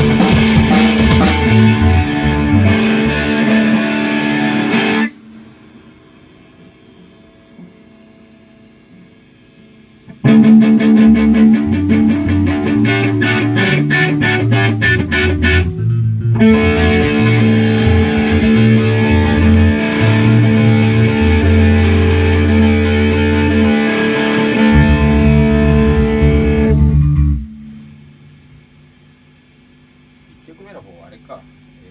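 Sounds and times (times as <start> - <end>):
bass guitar: 0.0 - 5.2, 10.0 - 28.8
electric guitar strumming: 0.0 - 5.9, 10.0 - 28.6.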